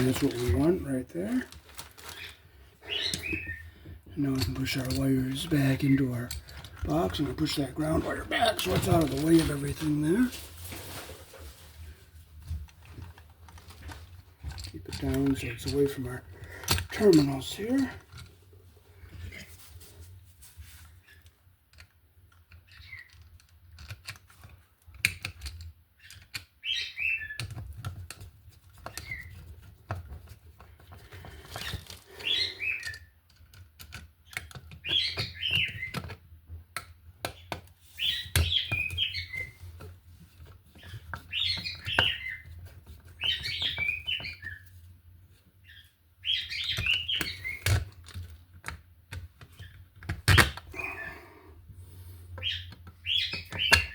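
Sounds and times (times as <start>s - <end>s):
bird chirping: 2.1s - 10.4s, 26.0s - 27.5s, 31.7s - 33.2s, 34.4s - 36.0s, 37.4s - 39.7s, 40.7s - 44.8s, 45.6s - 47.8s, 52.4s - 53.9s.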